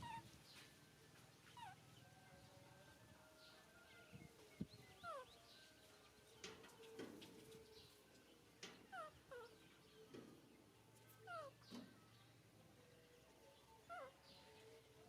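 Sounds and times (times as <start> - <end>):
baby monkey squeaking: 0.0 - 0.3, 1.6 - 1.8, 11.2 - 11.6.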